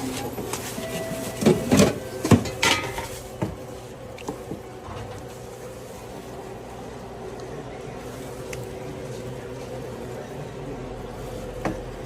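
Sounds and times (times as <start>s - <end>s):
utensils clinking against dishes: 0.0s - 3.2s
steady low hum: 0.0s - 12.0s.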